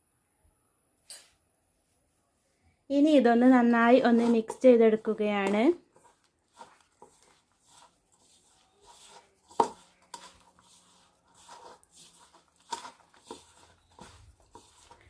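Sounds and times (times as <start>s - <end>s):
paste scraping in a bowl: 3.7s - 15.0s.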